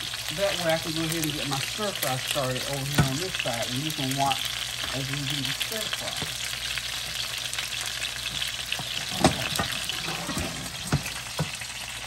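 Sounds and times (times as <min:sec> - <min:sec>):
chicken sizzling in oil: 0:00.0 - 0:12.0
pan knocking on a cooktop: 0:08.3 - 0:11.6.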